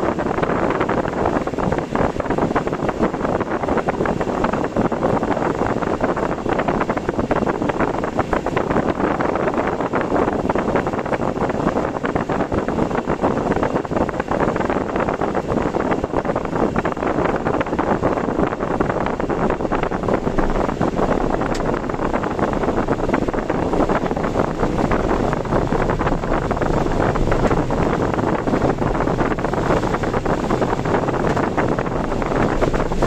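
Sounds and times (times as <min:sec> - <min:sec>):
car road noise: 0:00.0 - 0:33.0
strong wind and rain: 0:00.0 - 0:33.0.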